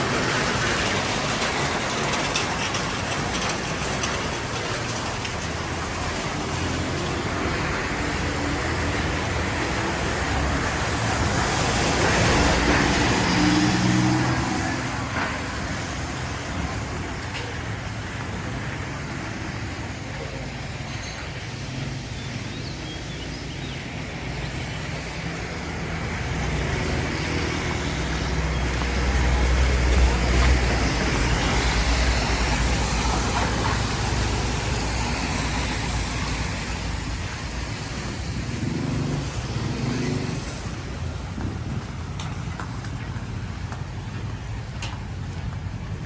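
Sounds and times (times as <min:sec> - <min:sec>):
road noise hiss: 0:00.0 - 0:46.0
vehicle passing close: 0:05.6 - 0:17.0, 0:23.8 - 0:43.0.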